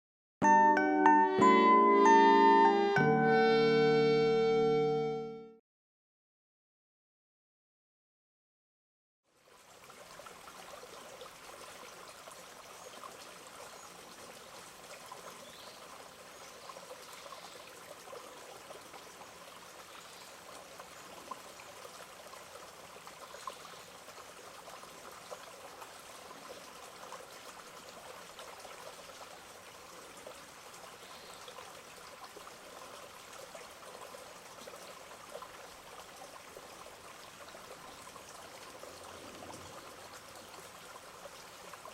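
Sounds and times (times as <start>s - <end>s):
stream water trickling: 9.3s - 41.9s.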